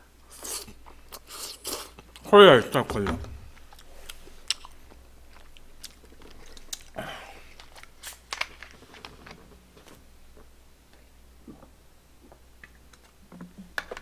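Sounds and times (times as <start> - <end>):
chewing with wet mouth sounds: 3.6 - 8.2.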